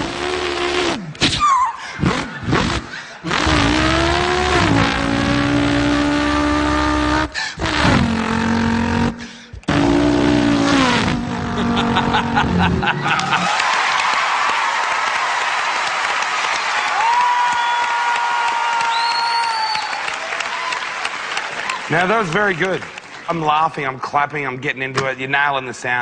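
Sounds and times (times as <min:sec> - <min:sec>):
man imitating car engine: 0:00.0 - 0:13.5
applause: 0:13.0 - 0:23.7.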